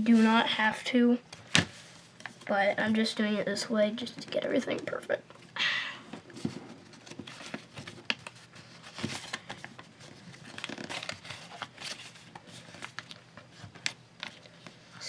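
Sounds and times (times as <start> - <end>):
paper crinkling and rustling: 6.3 - 15.0.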